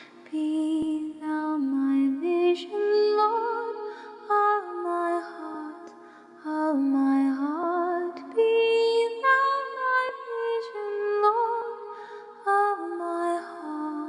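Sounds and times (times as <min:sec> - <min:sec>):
a cappella voices in harmony: 0:00.0 - 0:14.0.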